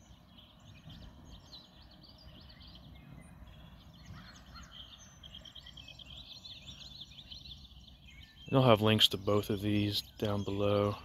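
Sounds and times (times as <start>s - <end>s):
bird trilling: 0.0s - 11.0s
songbirds chirping: 0.0s - 11.0s.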